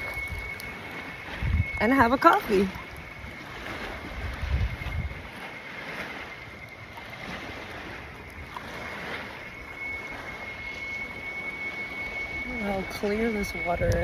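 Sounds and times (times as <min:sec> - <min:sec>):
high-pitched tone: 0:00.0 - 0:03.3, 0:09.5 - 0:14.0
small waves on water: 0:00.0 - 0:14.0
wind: 0:00.0 - 0:14.0.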